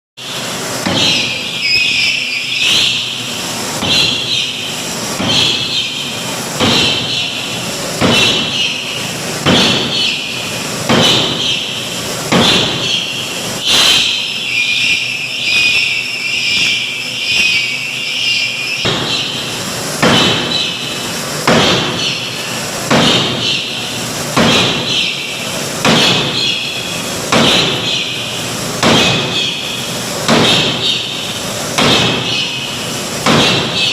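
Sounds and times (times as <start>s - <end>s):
forging hammer striking metal: 3.8s - 6.0s, 6.6s - 7.4s, 8.0s - 14.2s, 18.8s - 22.2s, 22.9s - 23.8s, 24.4s - 28.2s, 28.8s - 31.2s, 31.8s - 33.9s.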